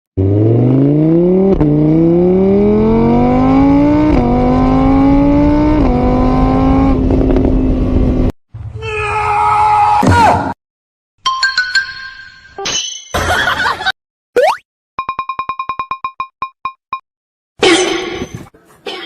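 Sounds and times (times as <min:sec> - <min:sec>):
vehicle engine accelerating: 0:00.2 - 0:08.3.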